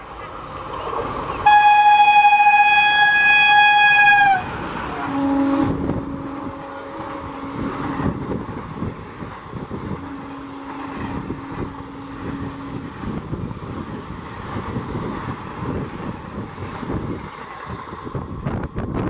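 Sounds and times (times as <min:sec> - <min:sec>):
train coaches rushing by: 0:00.0 - 0:19.0
locomotive horn blast: 0:01.4 - 0:08.4, 0:09.8 - 0:13.0.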